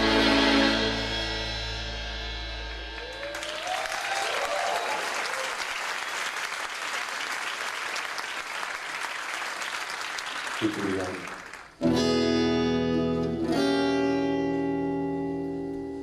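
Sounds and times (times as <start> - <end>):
crowd cheering: 2.9 - 11.8
audience applause: 3.0 - 11.8.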